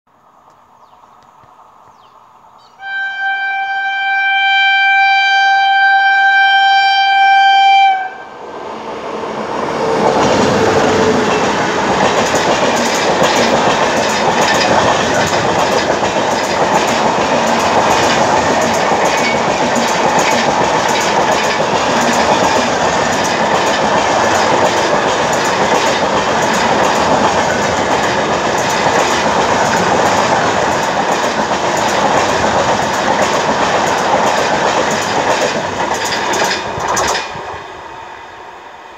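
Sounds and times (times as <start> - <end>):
train horn: 2.8 - 8.5
train rolling past: 7.8 - 38.9
clickety-clack of wheels: 11.3 - 37.4.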